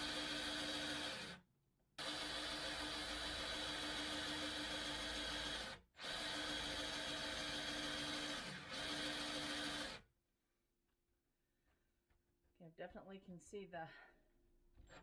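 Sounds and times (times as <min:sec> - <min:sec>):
electric drill boring into wood: 0:00.0 - 0:01.4, 0:02.0 - 0:10.0.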